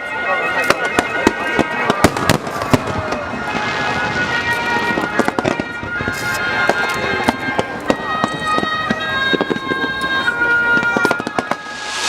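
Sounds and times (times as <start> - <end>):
fireworks crackling: 0.0 - 12.0
fireworks popping and banging: 0.5 - 12.0
high steady tones: 7.8 - 12.0.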